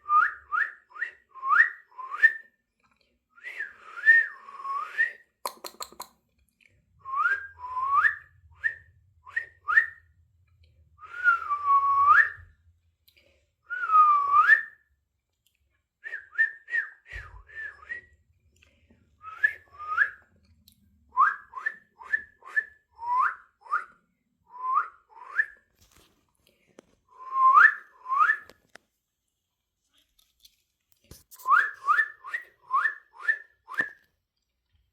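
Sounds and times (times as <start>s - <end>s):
person whistling: 0.0s - 2.5s, 3.4s - 5.8s, 7.0s - 10.1s, 11.0s - 12.5s, 13.7s - 14.9s, 16.0s - 18.2s, 19.2s - 20.2s, 21.2s - 25.7s, 27.2s - 28.5s, 31.3s - 34.0s.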